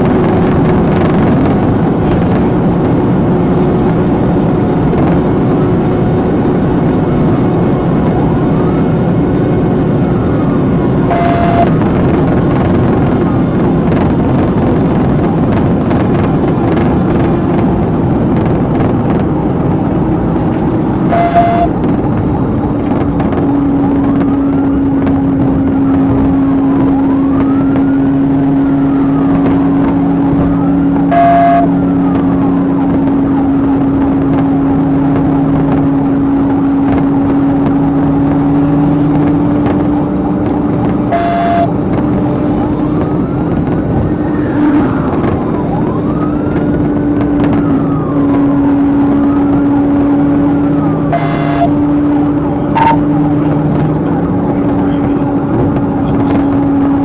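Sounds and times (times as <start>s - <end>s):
car driving at speed: 0.0s - 57.0s
police siren wailing: 7.7s - 14.4s, 19.6s - 22.7s, 25.4s - 35.7s, 38.9s - 57.0s
short beep: 11.1s - 11.8s, 21.1s - 21.8s, 31.1s - 31.8s, 41.1s - 41.7s, 51.1s - 51.8s, 52.8s - 53.0s.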